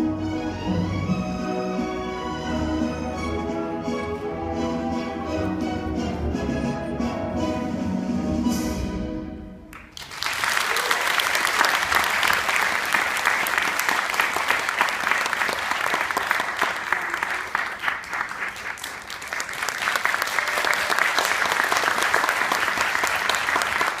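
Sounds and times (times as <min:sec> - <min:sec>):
audience applauding: 0:09.7 - 0:24.0.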